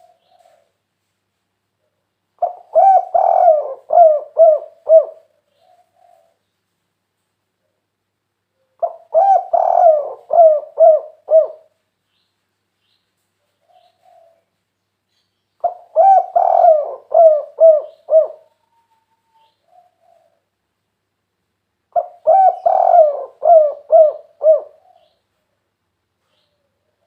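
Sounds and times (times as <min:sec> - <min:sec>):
dove cooing: 0:00.0 - 0:00.8, 0:02.4 - 0:06.4, 0:08.6 - 0:11.8, 0:13.6 - 0:14.5, 0:15.6 - 0:20.5, 0:21.9 - 0:25.2.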